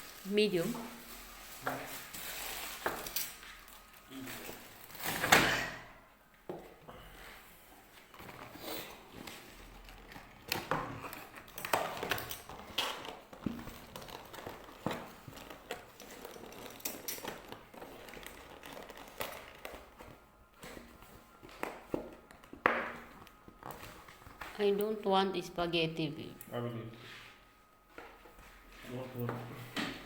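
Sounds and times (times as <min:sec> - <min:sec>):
packaging rustling: 0:00.0 - 0:05.1, 0:08.0 - 0:20.0.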